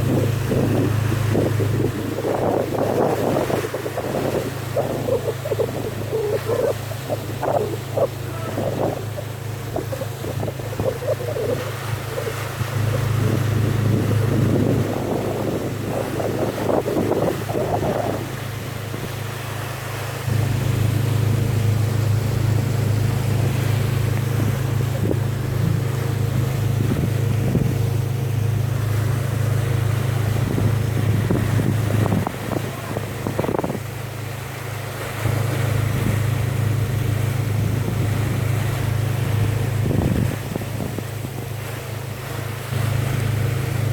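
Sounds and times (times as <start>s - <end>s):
wind on microphone: 0.0s - 34.5s, 35.1s - 43.9s
boat engine droning: 0.0s - 43.9s
water splashing against hull: 0.0s - 43.9s.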